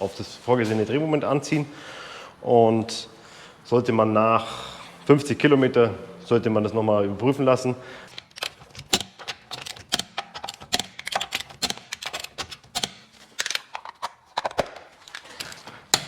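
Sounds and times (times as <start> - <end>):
torque wrench clicking: 8.1 - 13.1.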